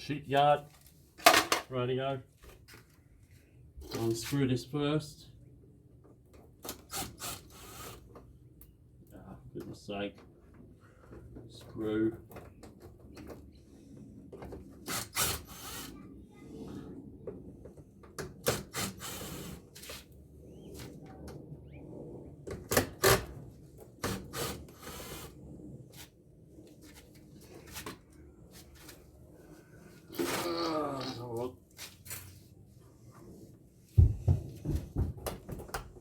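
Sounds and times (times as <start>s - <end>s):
scraping and rubbing: 24.4s - 33.9s.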